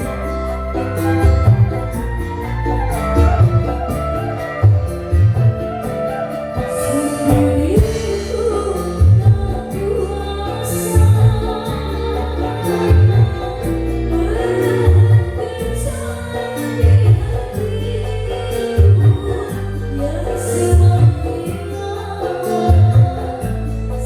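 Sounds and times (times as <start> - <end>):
song over pa system: 0.0 - 24.0
deep bass hits: 7.3 - 16.2.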